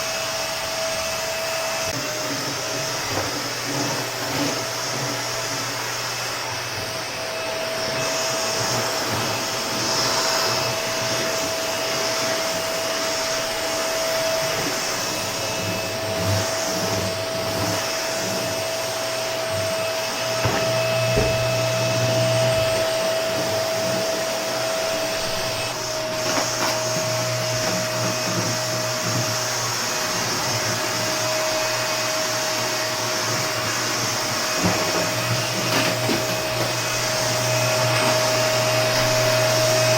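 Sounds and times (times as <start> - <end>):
vacuum cleaner running: 0.0 - 39.9
vacuum knocking on floor: 19.5 - 23.6.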